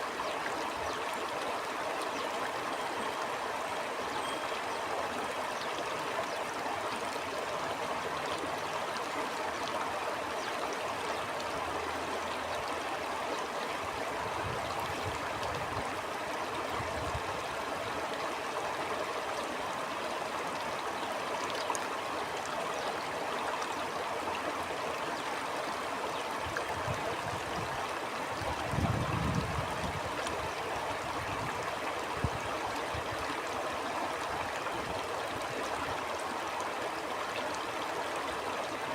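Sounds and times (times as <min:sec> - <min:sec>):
stream flowing: 0:00.0 - 0:38.9
low rumbling wind gusts: 0:28.4 - 0:30.1.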